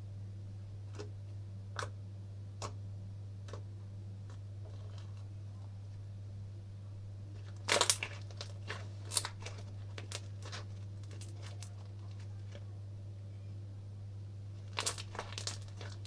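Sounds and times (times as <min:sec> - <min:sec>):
low background hum: 0:00.0 - 0:16.0
slime crackling and popping: 0:07.4 - 0:12.3, 0:14.6 - 0:16.0.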